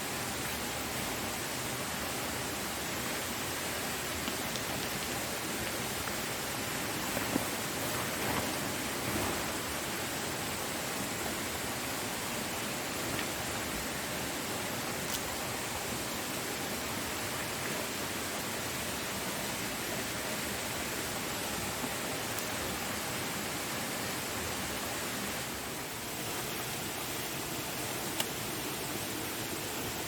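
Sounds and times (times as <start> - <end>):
waterfall rushing: 0.6 - 22.2.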